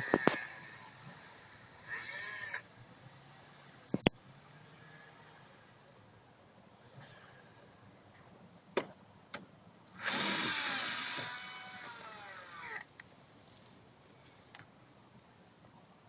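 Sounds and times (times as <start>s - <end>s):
drill boring a hole: 0.0s - 2.6s, 10.0s - 12.9s.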